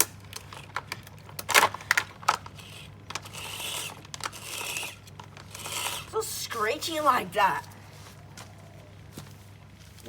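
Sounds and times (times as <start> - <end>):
box fan motor hum: 0.0 - 9.8.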